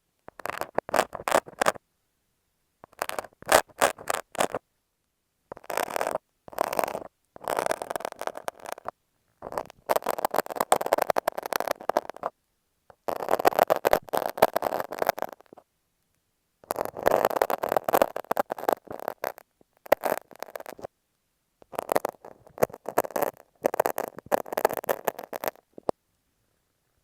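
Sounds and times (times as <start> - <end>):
knife and tape scraping microphone: 0.4 - 1.8, 3.0 - 4.6, 5.5 - 12.3, 13.0 - 15.6, 16.6 - 20.9, 21.7 - 25.9.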